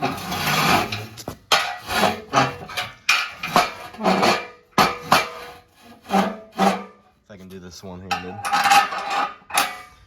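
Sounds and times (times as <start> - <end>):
metal parts clanking: 0.0 - 7.0, 8.0 - 10.0.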